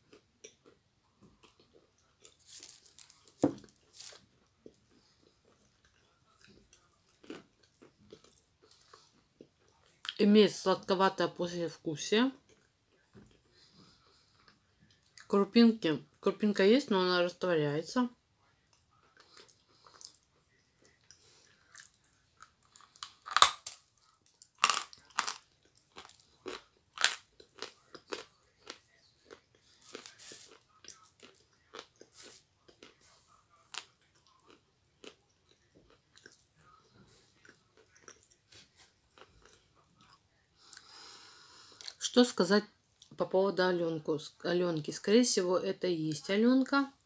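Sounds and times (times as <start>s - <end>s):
crunching and chewing chalk: 0.0s - 10.1s, 18.6s - 40.9s.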